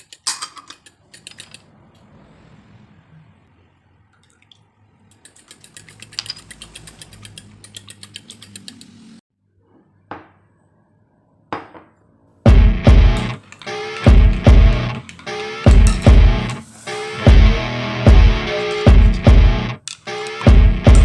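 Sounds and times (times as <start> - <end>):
utensil clinking against bowl: 0.0 - 1.7.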